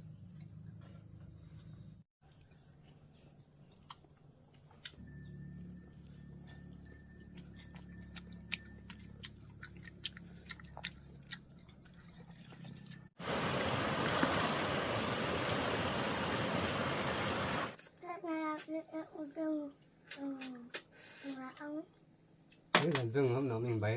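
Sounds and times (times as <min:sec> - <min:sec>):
stream flowing: 0:13.2 - 0:17.8.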